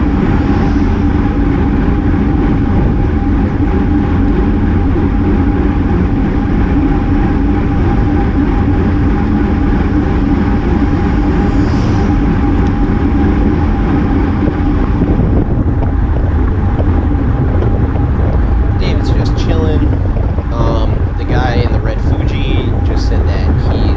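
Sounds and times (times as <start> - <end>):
faint steady hum: 0.0 - 23.9
wind buffeting microphone: 0.0 - 23.9.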